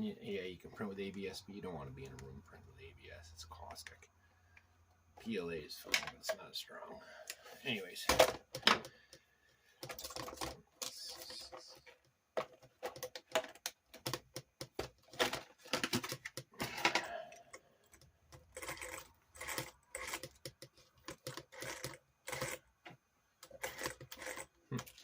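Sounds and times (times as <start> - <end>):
small parts and tools clicking: 8.2 - 25.0.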